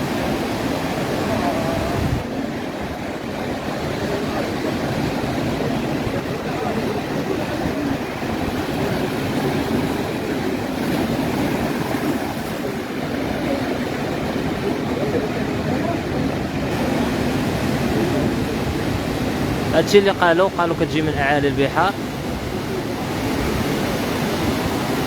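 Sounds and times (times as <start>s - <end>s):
sea surf: 0.0s - 25.0s
wind: 0.0s - 25.0s.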